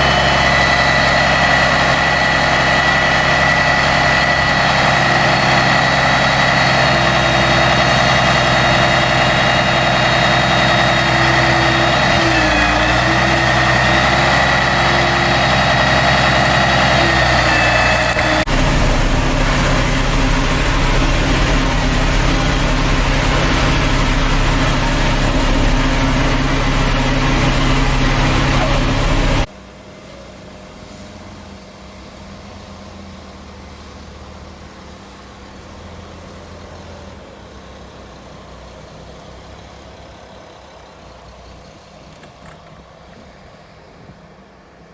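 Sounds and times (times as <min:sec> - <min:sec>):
high machine whine: 0:00.0 - 0:29.5
heavy farm machinery running: 0:00.0 - 0:44.9.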